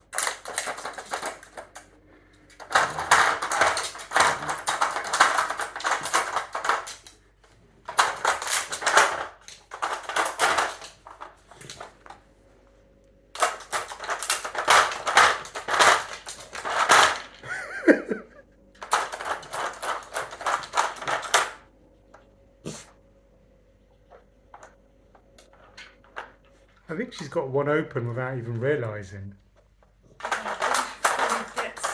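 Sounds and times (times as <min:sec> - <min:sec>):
plastic puzzle toy rattling: 0:00.0 - 0:07.2, 0:07.8 - 0:12.2, 0:13.4 - 0:17.7, 0:18.8 - 0:21.6, 0:30.2 - 0:31.9.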